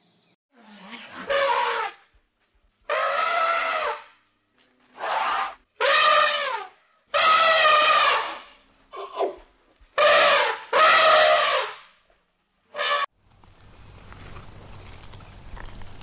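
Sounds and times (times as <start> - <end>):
elephant trumpeting: 0.7 - 2.0, 2.9 - 4.1, 5.0 - 9.4, 10.0 - 11.8.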